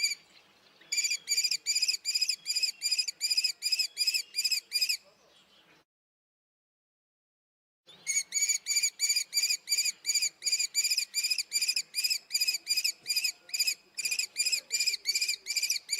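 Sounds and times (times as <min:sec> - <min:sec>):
kestrel shrill repeated call: 0:00.9 - 0:05.0, 0:08.0 - 0:15.9.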